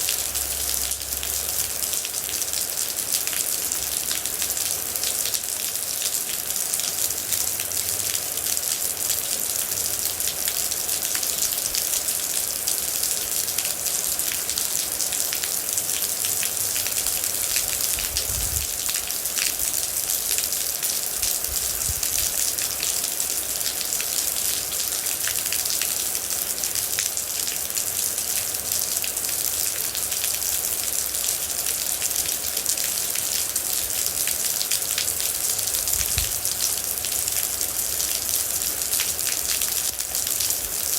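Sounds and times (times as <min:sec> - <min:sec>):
raindrops ticking on a surface: 0:00.0 - 0:40.9.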